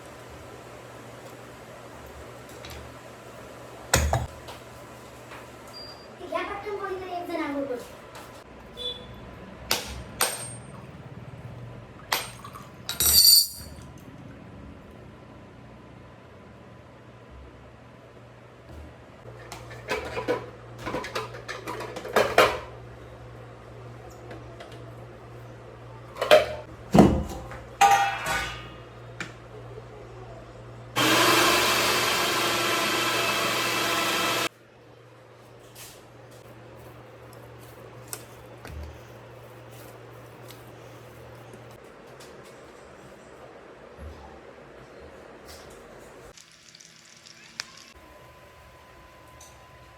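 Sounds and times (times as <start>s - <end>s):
kitchen appliance motor whirring: 31.0s - 34.5s, 46.4s - 48.0s.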